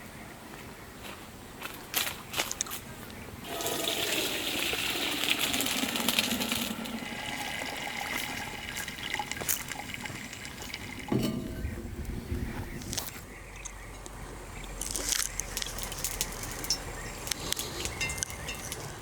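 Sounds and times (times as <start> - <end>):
water pouring: 3.4 - 11.8.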